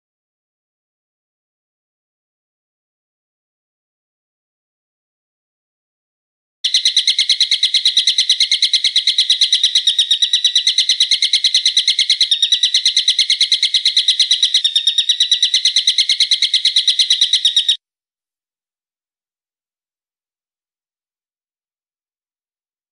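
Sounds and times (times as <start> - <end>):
songbird trilling: 6.6 - 17.8.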